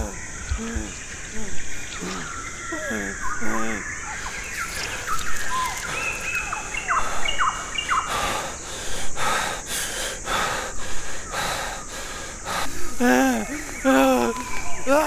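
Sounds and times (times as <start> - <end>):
birds chirping: 0.0 - 15.0
quick heavy breathing: 5.8 - 13.9.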